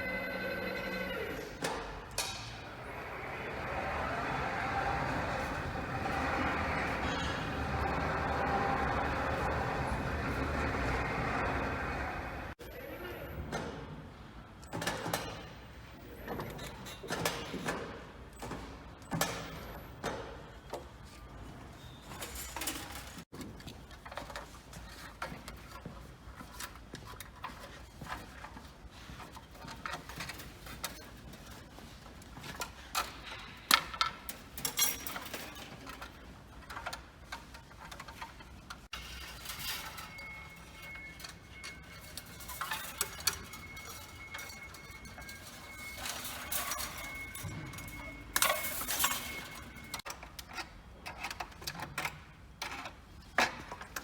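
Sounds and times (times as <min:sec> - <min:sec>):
metallic clinks of tools: 0:38.9 - 0:50.1.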